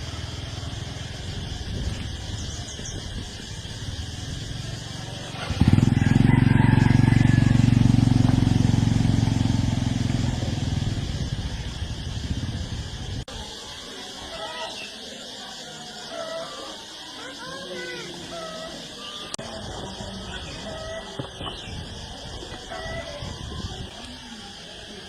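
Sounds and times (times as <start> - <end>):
small engine running: 3.4 - 13.2.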